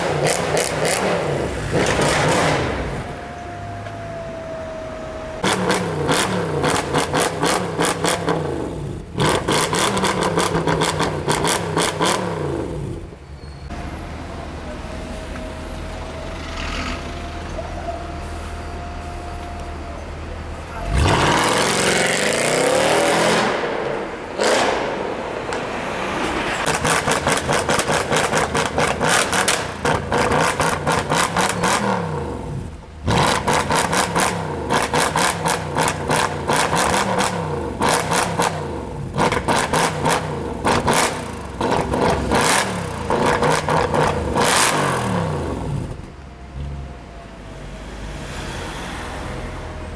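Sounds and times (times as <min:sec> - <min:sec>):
car exhaust revving: 0:05.4 - 0:13.1, 0:26.6 - 0:46.0.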